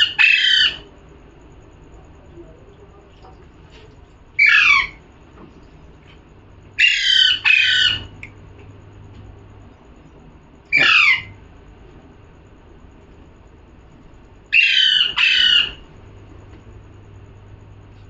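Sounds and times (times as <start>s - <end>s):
parrot squawking: 0.0s - 0.8s, 4.4s - 5.0s, 6.8s - 8.1s, 10.7s - 11.4s, 14.5s - 15.8s.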